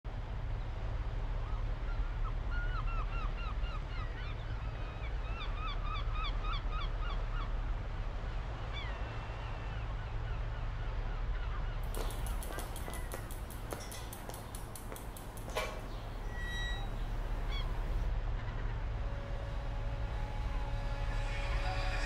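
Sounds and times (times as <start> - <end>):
birds calling: 11.8 - 18.1.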